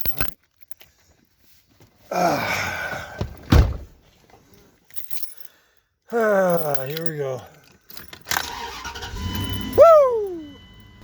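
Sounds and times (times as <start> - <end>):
vehicle door slamming: 3.2 - 4.0
person getting into vehicle: 7.7 - 11.0.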